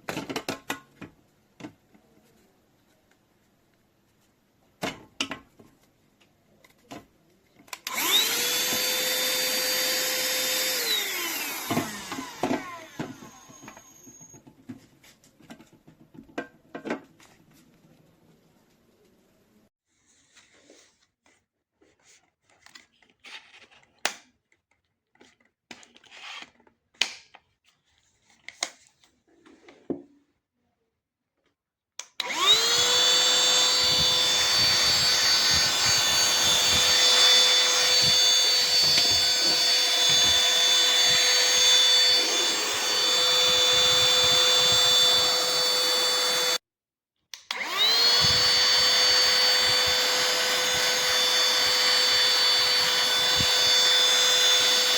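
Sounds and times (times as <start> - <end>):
handheld vacuum cleaner whining: 7.7 - 14.5, 32.2 - 46.6, 47.4 - 54.9.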